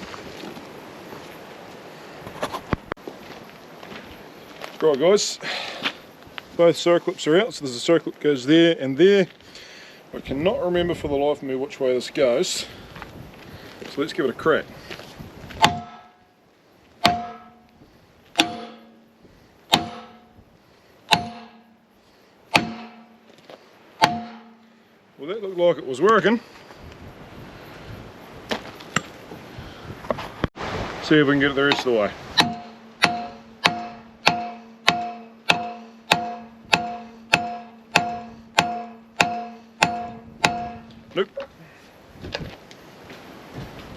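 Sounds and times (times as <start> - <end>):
hammer blows on metal: 15.6 - 16.3, 17.0 - 20.5, 21.1 - 21.9, 22.5 - 23.3, 24.0 - 24.8, 31.7 - 41.2.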